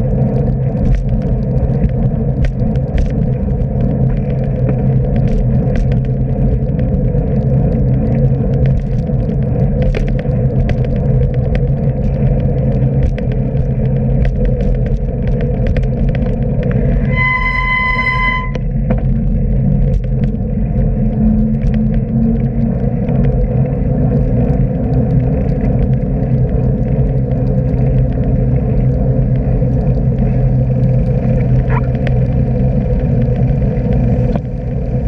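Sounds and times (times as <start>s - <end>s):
crackles and ticks: 0.0s - 35.0s
rumble of riding on wet road: 0.0s - 35.0s
short high-pitched beep: 17.0s - 18.6s.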